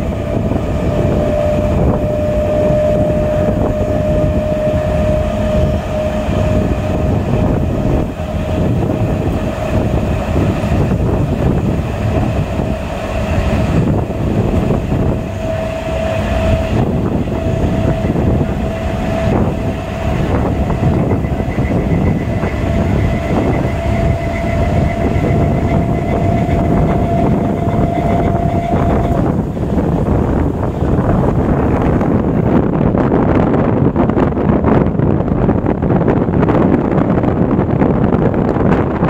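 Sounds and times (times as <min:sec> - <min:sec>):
rushing air: 0:00.0 - 0:39.0
steady high whine: 0:00.0 - 0:39.0
train wheels rumbling on rails: 0:00.0 - 0:39.0.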